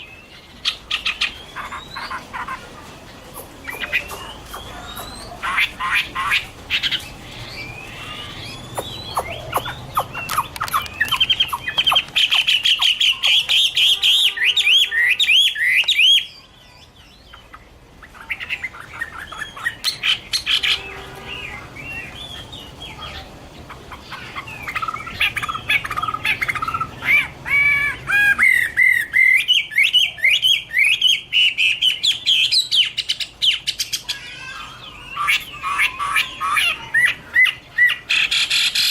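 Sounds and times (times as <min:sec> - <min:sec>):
bird singing whistled phrases: 0:07.5 - 0:16.5.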